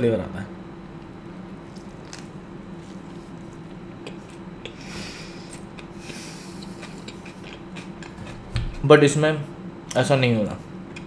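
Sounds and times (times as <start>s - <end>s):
faint steady hum: 0.0s - 11.0s
crunchy chewing: 1.5s - 8.8s
short breaths: 4.8s - 6.6s.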